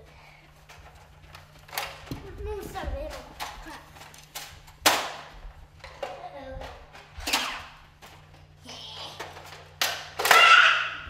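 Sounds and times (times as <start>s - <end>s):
child's voice: 2.1s - 3.9s, 6.0s - 6.9s
loud vocal cry: 10.2s - 11.0s.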